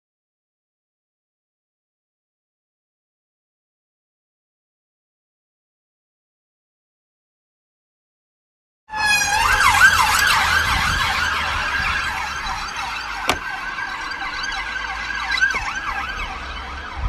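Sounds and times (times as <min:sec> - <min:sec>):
siren yelping: 0:08.9 - 0:17.0.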